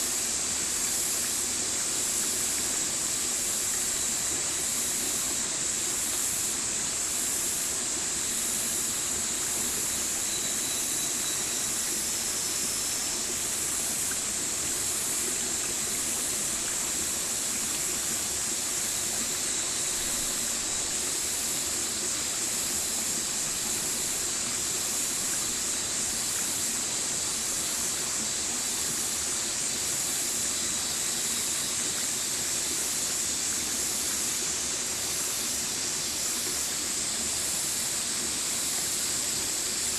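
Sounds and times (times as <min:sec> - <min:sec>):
high-pitched hiss: 0:00.0 - 0:39.9
stream water rushing: 0:00.0 - 0:39.9.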